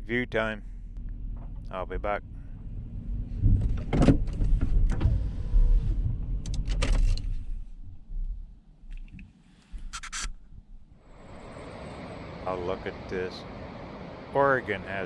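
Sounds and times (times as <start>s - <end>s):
low rumble: 0.0s - 8.9s
clicks knocks and rattles in van: 3.4s - 5.2s, 6.4s - 7.3s.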